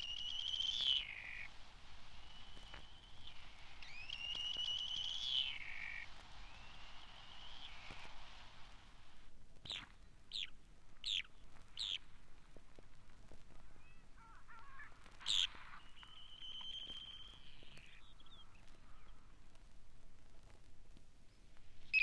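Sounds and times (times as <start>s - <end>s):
sandpiper calling: 0.0s - 8.9s, 9.7s - 12.1s, 13.7s - 19.3s
soft bird chatter: 0.0s - 8.9s, 9.6s - 12.3s, 13.3s - 19.7s, 21.2s - 22.0s.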